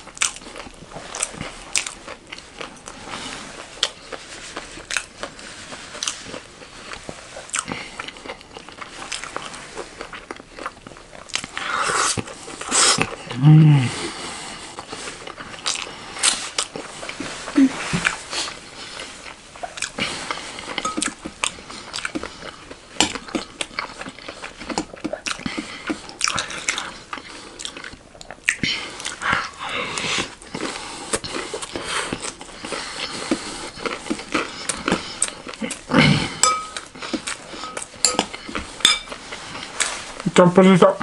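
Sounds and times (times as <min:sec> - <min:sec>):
crunchy chewing: 0:00.0 - 0:40.3
metal spoon clinking in glass bowl: 0:36.4 - 0:36.8, 0:37.6 - 0:39.1.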